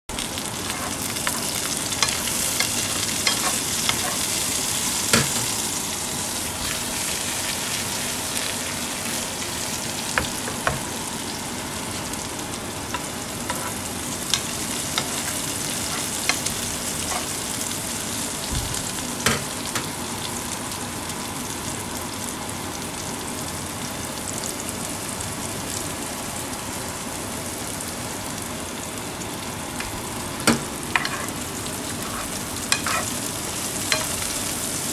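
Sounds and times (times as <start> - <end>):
vegetables sizzling in a frying pan: 0.1 - 34.9
metal spoon scraping a pan: 0.6 - 4.4, 13.5 - 13.8, 14.4 - 17.4, 31.0 - 33.2.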